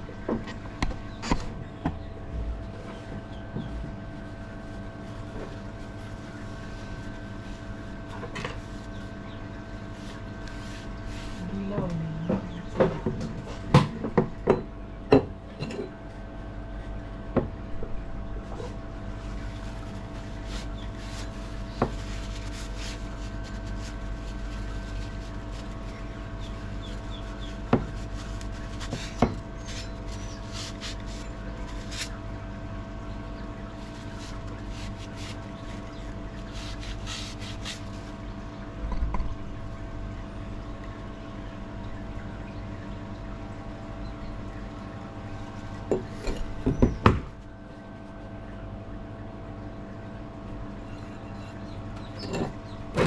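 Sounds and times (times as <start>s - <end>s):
steady hum: 0.0s - 53.0s
rubbing and scraping on metal: 33.8s - 38.2s, 50.8s - 53.0s.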